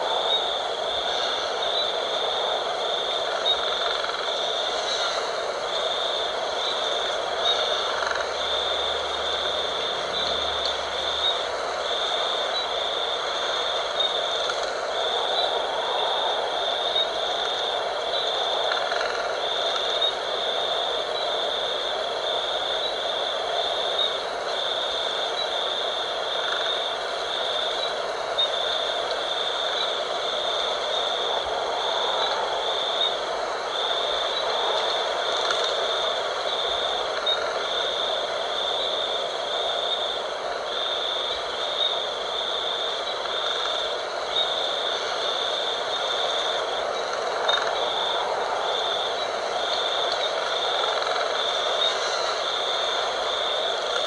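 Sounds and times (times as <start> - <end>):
shrill insect chorus: 0.0 - 54.0
wind blowing: 0.0 - 54.0.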